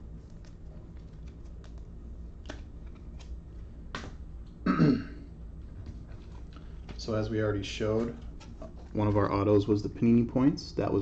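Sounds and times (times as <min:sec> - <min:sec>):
throat clearing: 0:04.7 - 0:05.2.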